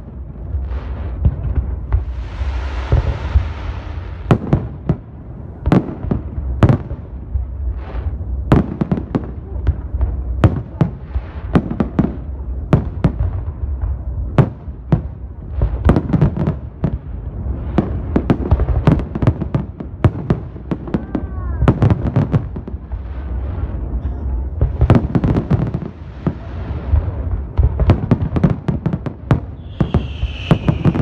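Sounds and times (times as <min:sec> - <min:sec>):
fireworks hissing: 0:00.0 - 0:06.7, 0:24.6 - 0:31.0
fireworks shells bursting: 0:29.6 - 0:31.0.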